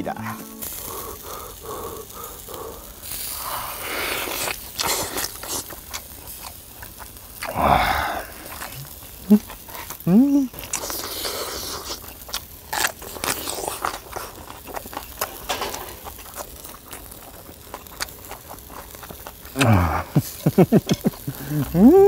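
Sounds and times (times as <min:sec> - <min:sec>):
voice falling in pitch: 0:00.0 - 0:00.8, 0:21.5 - 0:22.0
close chewing with wet clicks: 0:00.8 - 0:07.6, 0:08.3 - 0:21.8.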